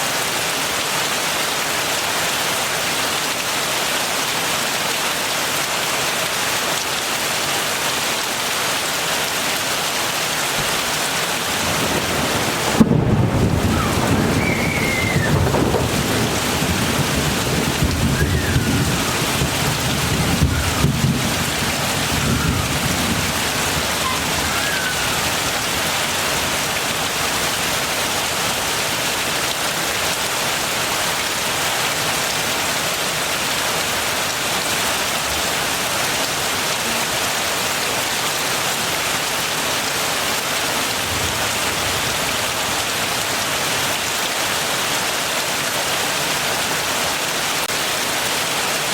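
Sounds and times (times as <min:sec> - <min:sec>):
heavy rain: 0:00.0 - 0:48.9
thunder rumbling: 0:11.3 - 0:27.5.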